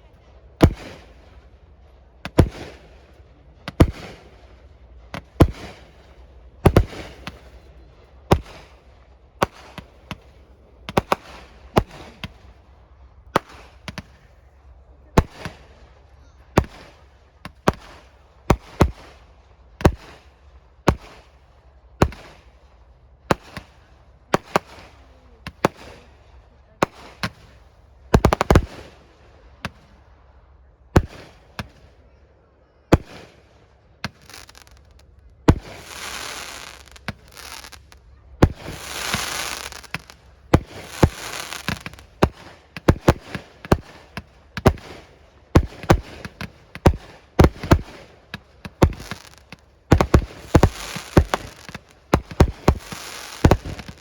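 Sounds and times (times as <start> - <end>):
firework shells bursting: 0.6 - 1.4, 2.2 - 3.0, 3.7 - 4.5, 5.1 - 8.8, 9.4 - 12.6, 13.4 - 14.3, 23.3 - 26.2, 26.8 - 30.0, 34.0 - 54.0.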